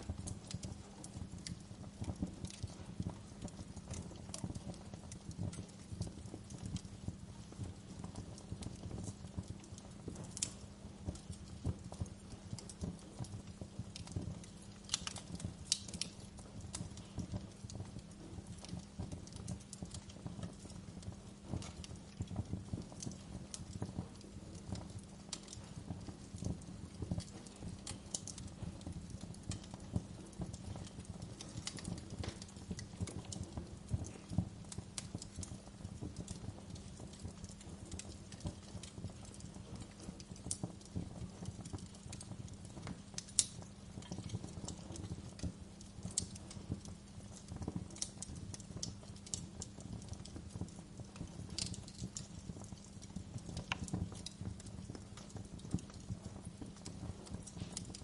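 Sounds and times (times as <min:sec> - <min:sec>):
fire crackling in fireplace: 0:00.0 - 0:58.0
sharp pops of fire: 0:00.0 - 0:58.0.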